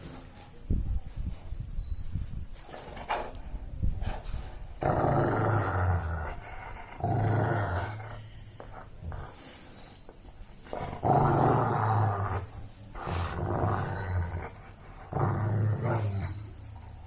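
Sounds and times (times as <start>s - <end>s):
puppy play-growling: 10.6s - 16.5s.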